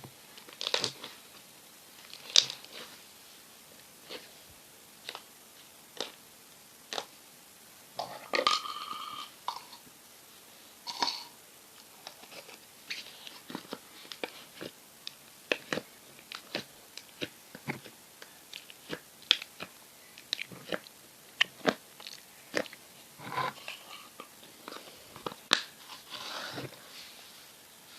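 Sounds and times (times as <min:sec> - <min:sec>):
slime squishing: 0:15.5 - 0:23.8.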